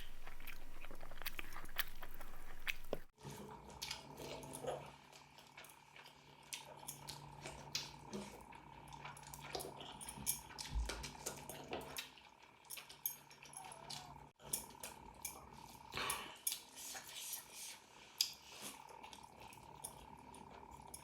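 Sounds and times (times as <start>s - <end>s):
lip smacking: 0.0s - 3.1s
wet chewing: 0.0s - 3.2s.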